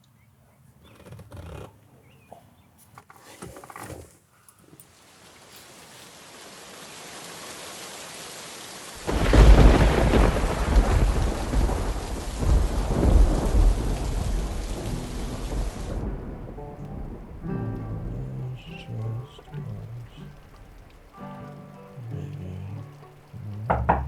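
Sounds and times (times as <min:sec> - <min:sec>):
steady rain falling: 0:04.8 - 0:24.0
thunder clap and rumble: 0:09.0 - 0:21.3.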